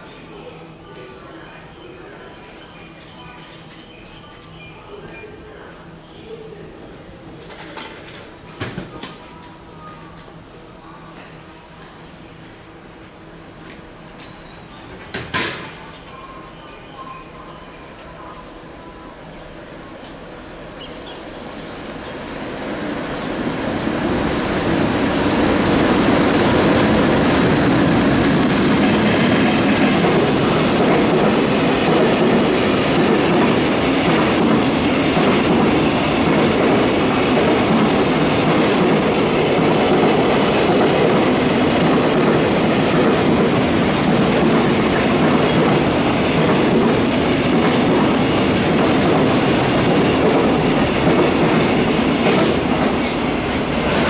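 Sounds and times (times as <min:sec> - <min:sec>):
freight train rumbling past: 0:19.4 - 0:54.0.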